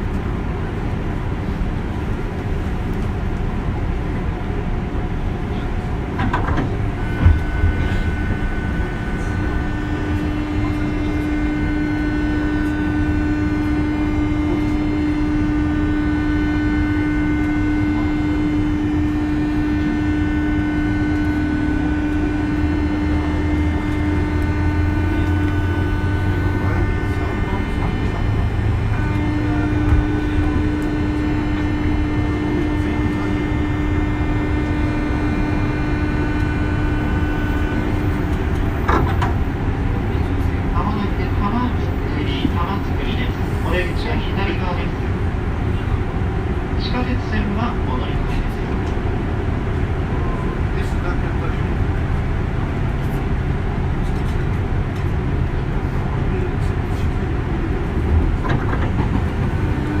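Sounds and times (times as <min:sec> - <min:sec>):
electric train rolling rumble: 0:00.0 - 1:00.0
electrical whine: 0:05.0 - 0:48.3, 0:56.3 - 1:00.0.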